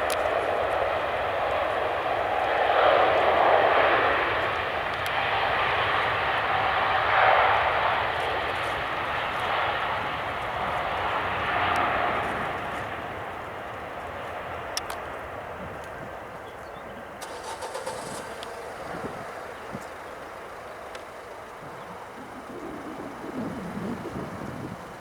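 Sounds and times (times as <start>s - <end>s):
jet engines rushing: 0.0s - 16.4s, 17.0s - 25.0s
faint steady whine: 17.2s - 25.0s.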